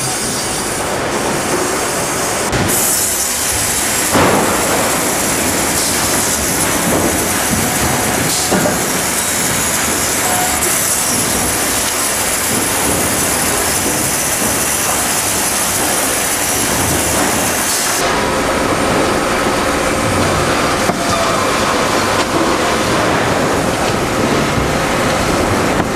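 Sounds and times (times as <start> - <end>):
sawmill machinery clatter and hiss: 0.0 - 25.9.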